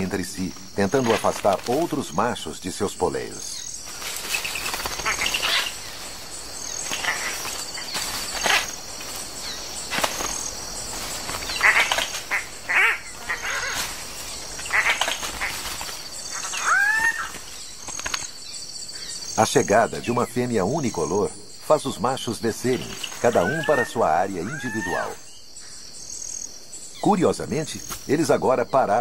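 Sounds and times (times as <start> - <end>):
birds squawking calls: 0.0 - 29.0
insects pulsing: 0.0 - 29.0
rising-and-falling bird call: 16.3 - 17.4.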